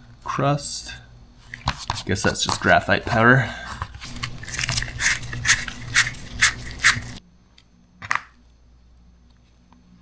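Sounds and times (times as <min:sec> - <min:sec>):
low steady hum: 0:00.0 - 0:10.0
brush scrubbing strokes: 0:01.4 - 0:07.2.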